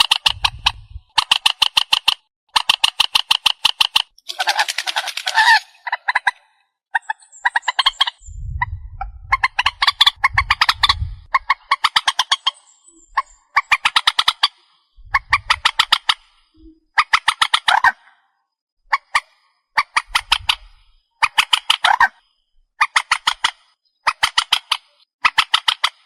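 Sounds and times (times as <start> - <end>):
swamphen calling: 4.2 - 8.3, 9.3 - 18.1
low rumble: 8.2 - 11.3, 15.0 - 15.7.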